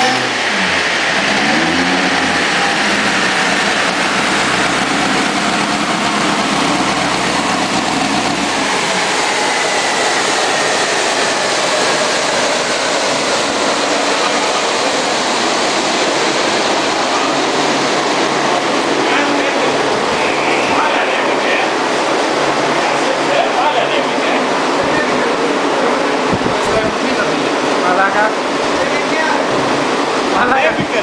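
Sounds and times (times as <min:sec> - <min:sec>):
drag car engine revving: 0:00.0 - 0:23.8
tyres and dyno rollers whining: 0:00.0 - 0:31.0.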